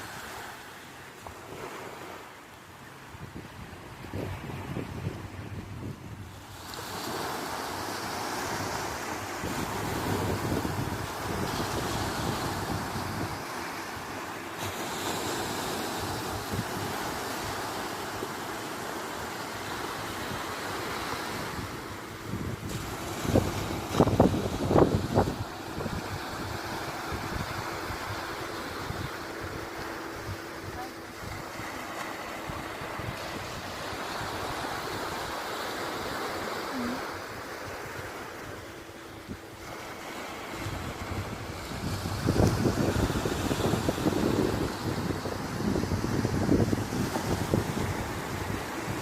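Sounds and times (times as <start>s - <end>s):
sea waves surging on shore: 0.0s - 49.0s
wind buffeting microphone: 3.2s - 7.2s, 8.4s - 18.5s, 19.6s - 35.5s, 40.4s - 49.0s.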